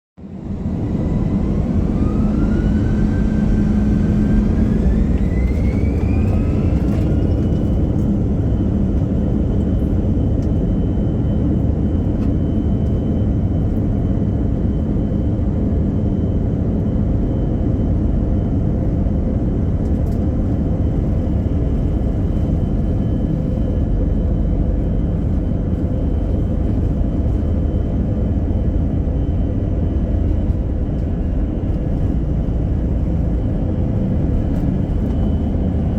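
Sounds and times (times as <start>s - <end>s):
jet engine whine: 0.2s - 35.9s
takeoff roll rumble: 0.4s - 9.9s.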